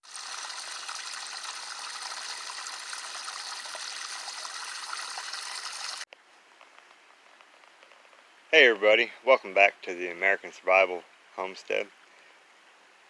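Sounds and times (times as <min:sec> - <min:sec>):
water drips: 0:00.0 - 0:06.1
water rushing and trickling: 0:00.0 - 0:06.1.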